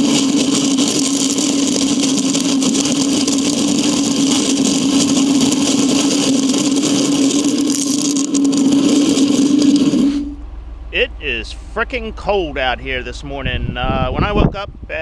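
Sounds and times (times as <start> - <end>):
vehicle engine idling: 10.0 - 13.4.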